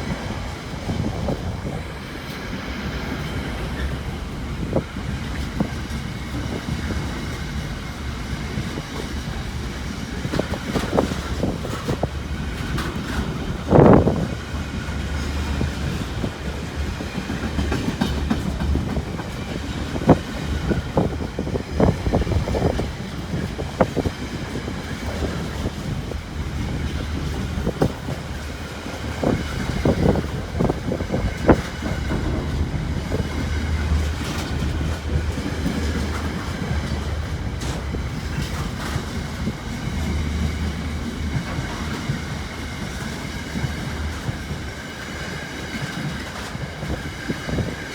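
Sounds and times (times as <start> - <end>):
low rumble of train: 0.0 - 47.9
train wheels clicking over rail joints: 0.0 - 47.9.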